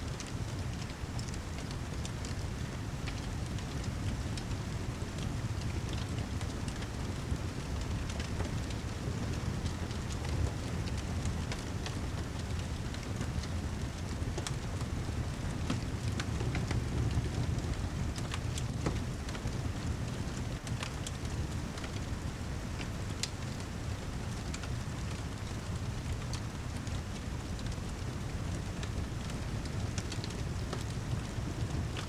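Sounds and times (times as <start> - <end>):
fireplace crackling: 0.1 - 32.0
heavy rain: 13.6 - 32.0.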